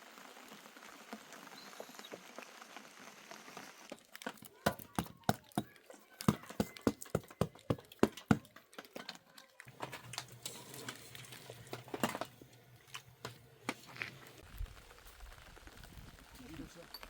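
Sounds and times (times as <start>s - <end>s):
scattered clicks and taps: 4.2s - 9.8s.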